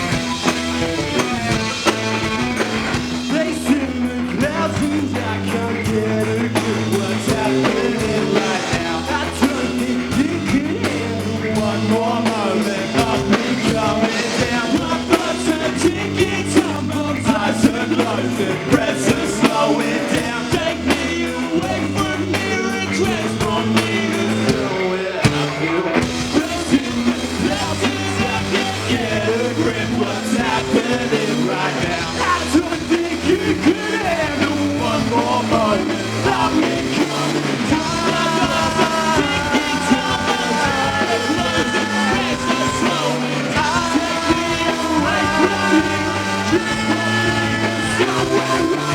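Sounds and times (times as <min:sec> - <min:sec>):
bass guitar: 0:00.0 - 0:48.9
drums: 0:00.0 - 0:48.9
person singing: 0:03.2 - 0:48.9.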